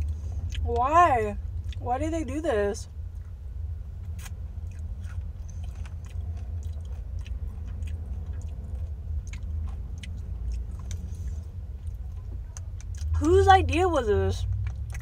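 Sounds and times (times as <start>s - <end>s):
steady low hum: 0.0s - 15.0s
person chewing: 4.0s - 13.2s, 14.4s - 15.0s.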